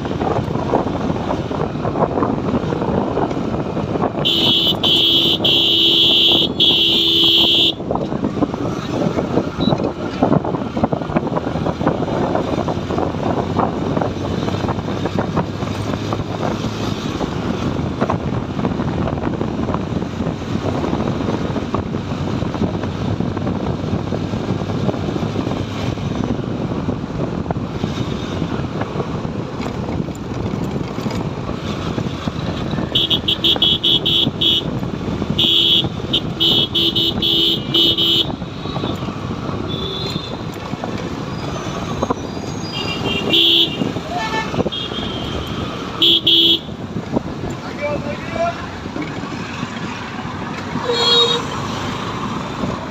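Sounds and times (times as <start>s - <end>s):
road and wind noise: 0.0s - 52.9s
vehicle horn honking: 4.2s - 7.8s, 32.9s - 34.7s, 35.4s - 38.9s, 39.6s - 40.5s, 42.7s - 46.8s, 50.8s - 51.5s
motorcycle engine: 19.3s - 47.6s.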